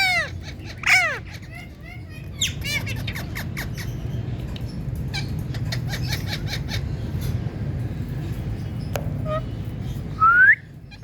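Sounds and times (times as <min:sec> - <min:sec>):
parakeet chirping: 0:00.0 - 0:07.4, 0:08.6 - 0:10.1.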